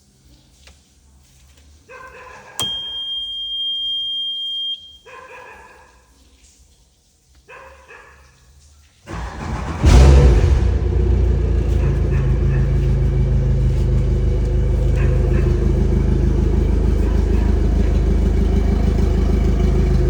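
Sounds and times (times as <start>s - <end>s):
click: 2.6s - 3.5s
high-pitched electronic beep: 2.6s - 5.1s
short dog-like yelps: 4.8s - 6.0s.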